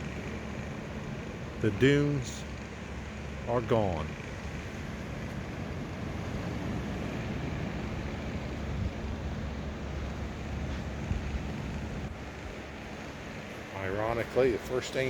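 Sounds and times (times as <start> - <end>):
wind noise on microphone: 10.8 - 12.1.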